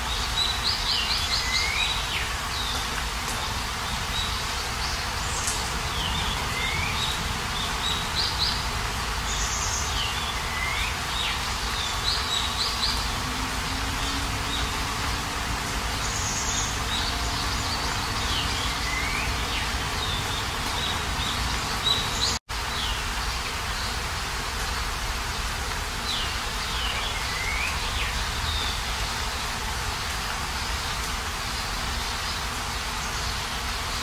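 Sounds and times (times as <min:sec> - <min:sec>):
small birds chirping: 0:00.0 - 0:24.1
steady rain falling: 0:00.0 - 0:34.0.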